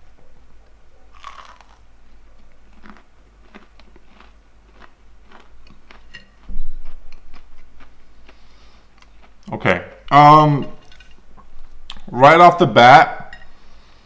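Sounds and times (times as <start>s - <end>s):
chewing with small crunches: 1.1s - 9.6s
person biting crunchy fried fish: 1.2s - 1.8s, 2.8s - 6.1s.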